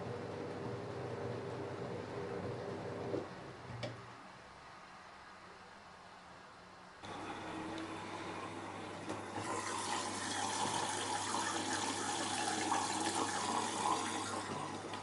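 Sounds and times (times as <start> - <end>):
faint steady hum: 0.0 - 15.0
water rushing into washing machine: 7.0 - 15.0.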